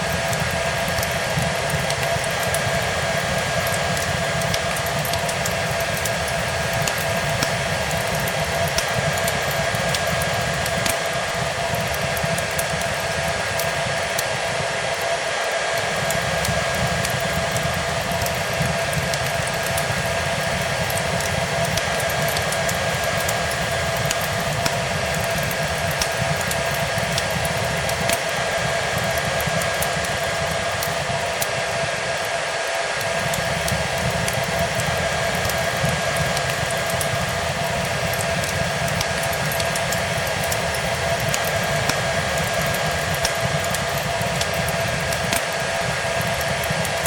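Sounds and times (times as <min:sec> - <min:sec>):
faint wood fire crackle: 0:00.0 - 0:47.0
hair dryer running: 0:00.0 - 0:47.0.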